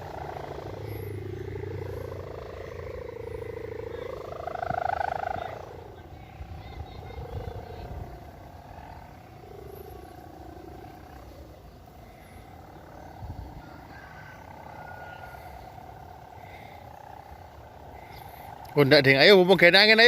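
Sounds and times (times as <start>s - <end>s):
wind buffeting microphone: 0.0s - 9.3s, 12.5s - 14.8s
wavering hum: 0.0s - 20.0s.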